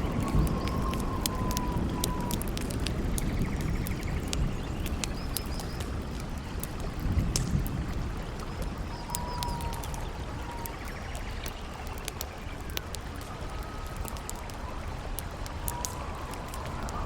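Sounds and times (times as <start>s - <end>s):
campfire crackling and popping: 0.0s - 17.0s
wind: 0.0s - 17.0s.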